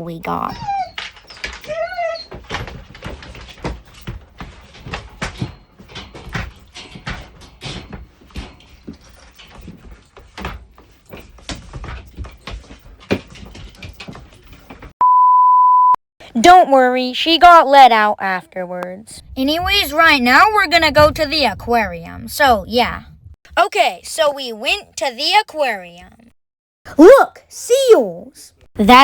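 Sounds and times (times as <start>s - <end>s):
dog whining: 0.5s - 2.5s
dog scratching at door: 0.6s - 14.9s.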